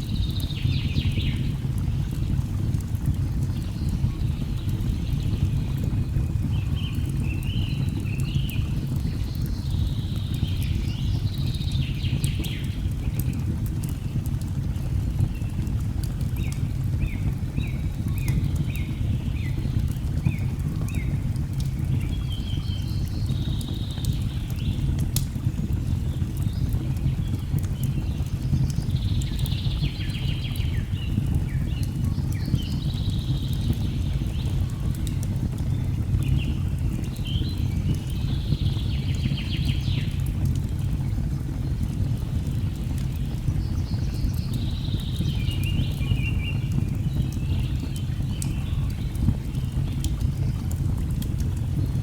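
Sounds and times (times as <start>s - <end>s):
fire crackling: 0.0s - 52.0s
birds chattering song: 26.2s - 50.8s.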